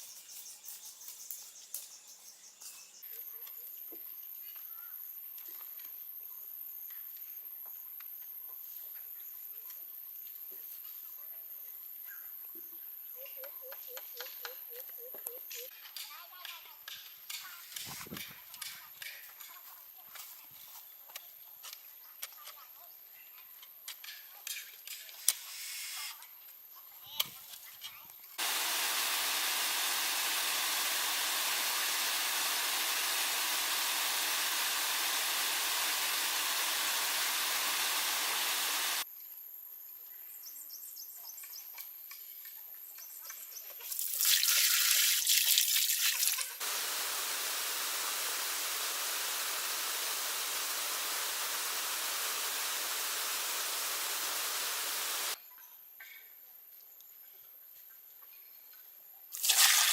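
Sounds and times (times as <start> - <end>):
water rushing: 28.4 - 39.0, 46.6 - 55.4.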